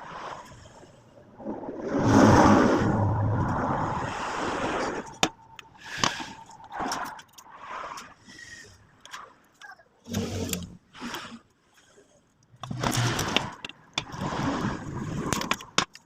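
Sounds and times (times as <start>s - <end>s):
air rushing out of a balloon: 1.4s - 6.9s
sharp clicks and knocks: 12.6s - 14.3s, 15.2s - 16.0s.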